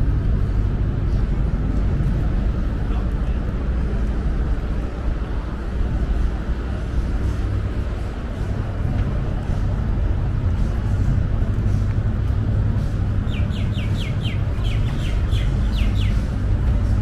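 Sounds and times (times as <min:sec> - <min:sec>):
low background rumble: 0:00.0 - 0:17.0
bird chirping: 0:13.3 - 0:16.2.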